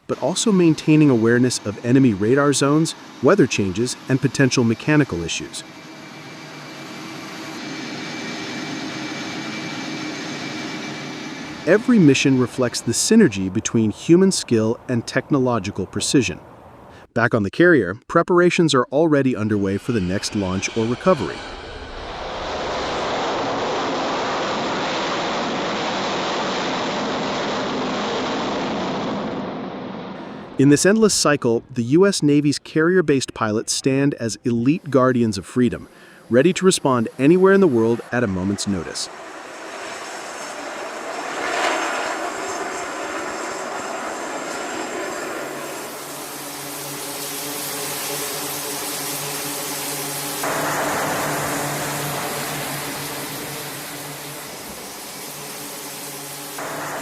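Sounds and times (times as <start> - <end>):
jet engine roar: 0.0 - 17.1, 19.0 - 57.0
steady hum: 44.4 - 57.0.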